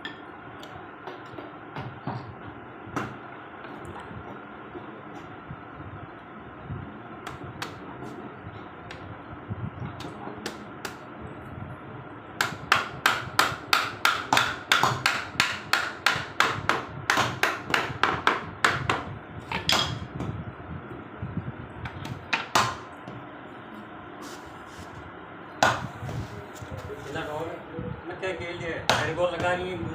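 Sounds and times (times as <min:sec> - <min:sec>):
hammer striking wood frame: 0:12.4 - 0:20.0.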